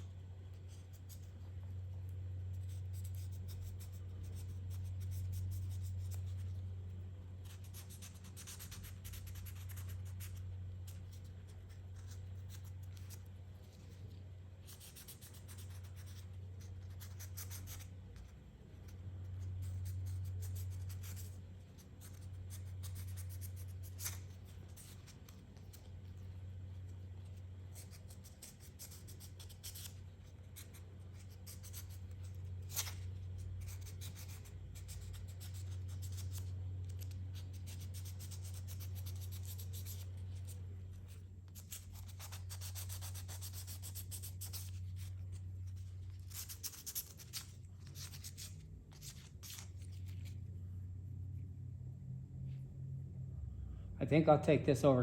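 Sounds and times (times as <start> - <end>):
low hum: 43.2 - 55.0.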